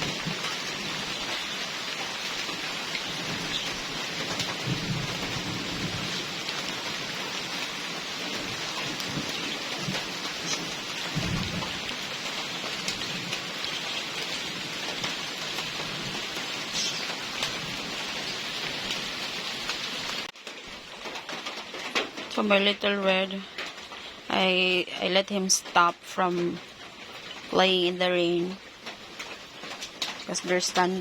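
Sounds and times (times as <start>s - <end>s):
thunder rumbles: 0.0s - 20.3s
heavy rain pattering: 0.0s - 31.0s.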